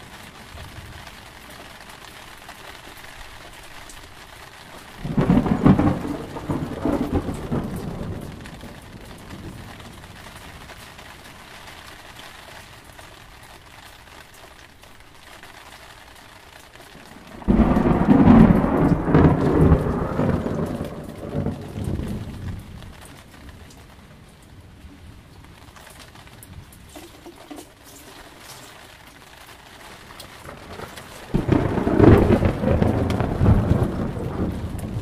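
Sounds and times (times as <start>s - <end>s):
steady rain: 0.0s - 35.0s
thunder rumbling: 4.8s - 11.3s, 16.9s - 23.6s, 29.8s - 35.0s.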